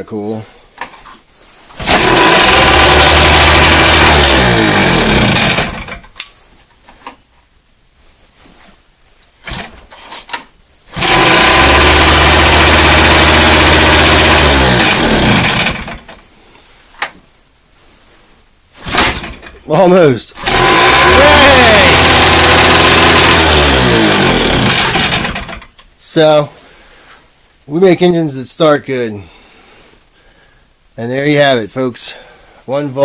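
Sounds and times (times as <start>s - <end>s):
outboard motor starting and dying: 1.8s - 6.1s, 10.9s - 16.2s, 18.8s - 19.7s, 20.4s - 25.7s.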